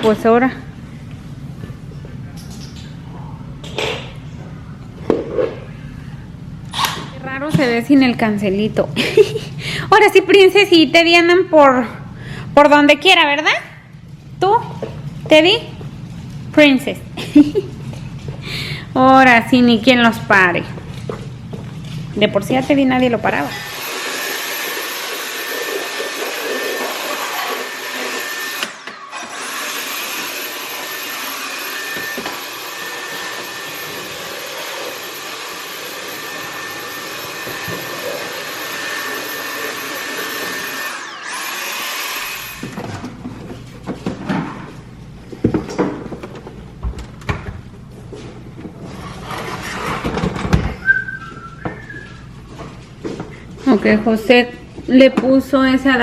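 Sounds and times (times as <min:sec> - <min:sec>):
vacuum cleaner whooshing: 0:23.5 - 0:43.0
objects knocking and clattering: 0:49.8 - 0:50.8.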